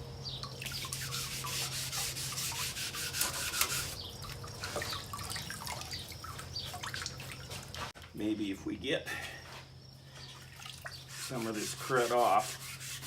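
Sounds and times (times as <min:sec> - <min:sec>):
scouring pad scrubbing metal: 0:00.8 - 0:04.0, 0:11.1 - 0:13.0.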